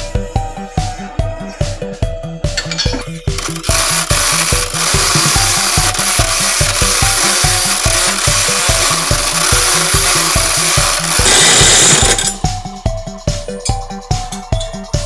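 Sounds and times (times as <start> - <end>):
background music with beat: 0.0 - 15.0
power saw cutting wood: 3.4 - 12.4.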